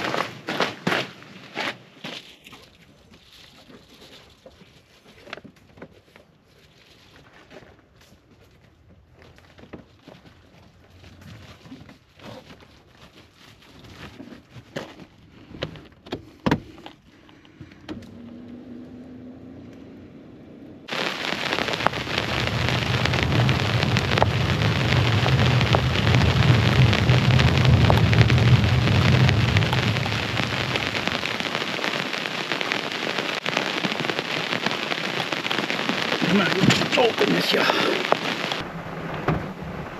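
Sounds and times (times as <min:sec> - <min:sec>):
heavy rain pouring: 0:20.9 - 0:39.9
low rumble of thunder: 0:21.4 - 0:31.4, 0:38.5 - 0:39.9.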